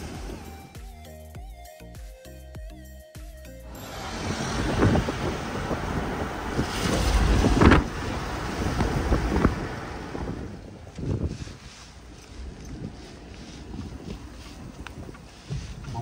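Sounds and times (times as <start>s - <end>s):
wind buffeting microphone: 3.7s - 16.0s.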